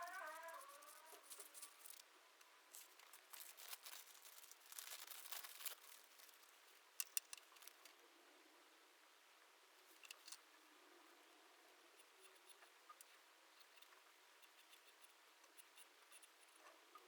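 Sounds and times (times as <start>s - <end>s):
faint rustling: 0.0s - 2.1s, 2.7s - 8.0s.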